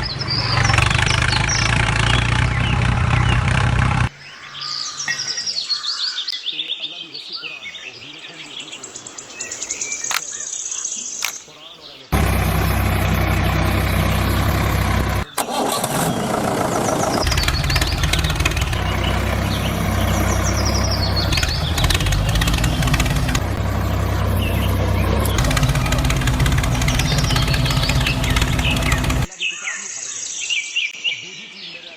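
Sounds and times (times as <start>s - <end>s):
engine idling: 0.0s - 4.1s, 12.1s - 29.3s.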